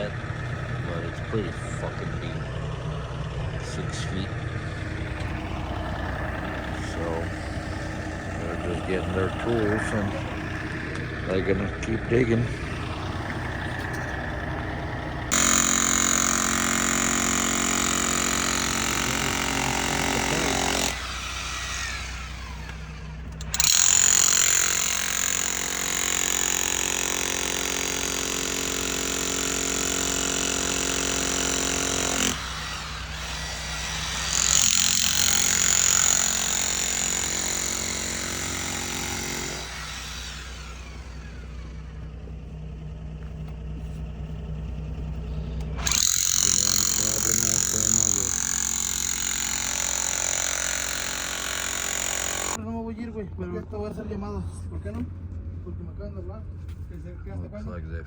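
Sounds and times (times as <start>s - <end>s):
low engine hum: 0.0s - 15.4s, 39.5s - 46.0s
digging equipment high whine: 0.0s - 52.6s.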